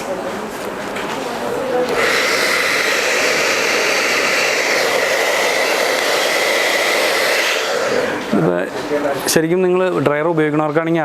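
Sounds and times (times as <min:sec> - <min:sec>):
hair dryer blowing air: 0:01.8 - 0:08.5
hair dryer motor whine: 0:01.9 - 0:08.4.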